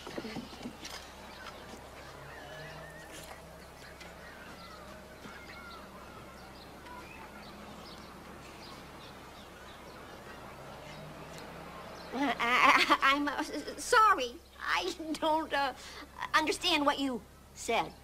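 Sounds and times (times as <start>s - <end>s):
bird-like chirps: 0.0s - 12.4s.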